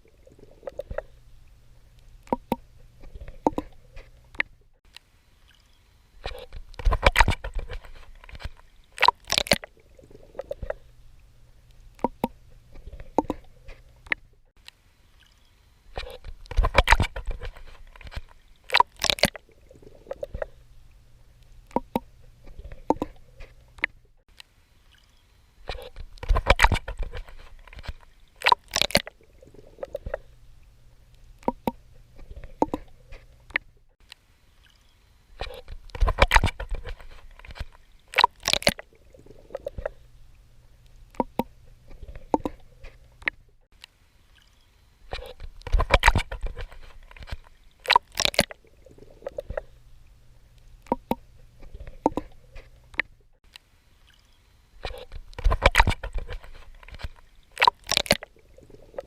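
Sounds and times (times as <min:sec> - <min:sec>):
water dripping: 0:00.0 - 0:10.8, 0:11.6 - 0:20.5, 0:21.4 - 0:25.2, 0:29.8 - 0:31.8, 0:39.4 - 0:41.6, 0:45.5 - 0:51.3.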